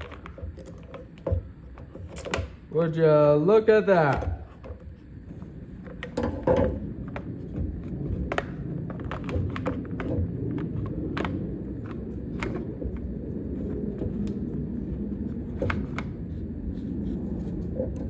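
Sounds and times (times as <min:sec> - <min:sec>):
low rumble: 0:05.3 - 0:18.0.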